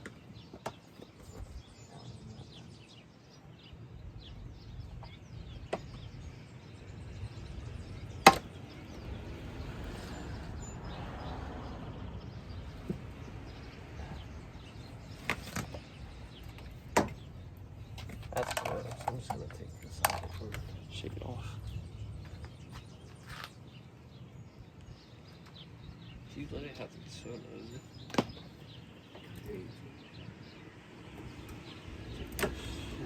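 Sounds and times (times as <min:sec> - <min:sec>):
tools and metal parts clinking: 0:18.0 - 0:20.6.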